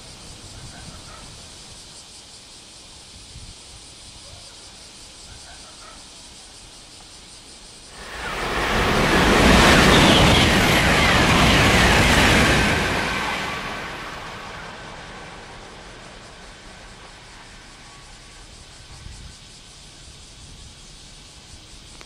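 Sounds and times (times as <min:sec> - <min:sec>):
high-speed train rushing past: 0:07.9 - 0:20.7.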